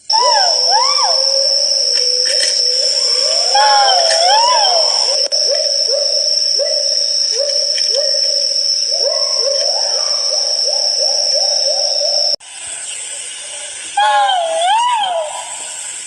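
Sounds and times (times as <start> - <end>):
pheasant calling: 0.0 - 12.4
steady high whine: 0.0 - 12.4.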